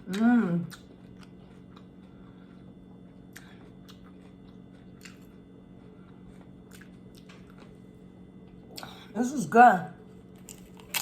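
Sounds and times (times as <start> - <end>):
person chewing food: 0.0 - 9.1, 10.3 - 11.0
steady low hum: 0.0 - 11.0.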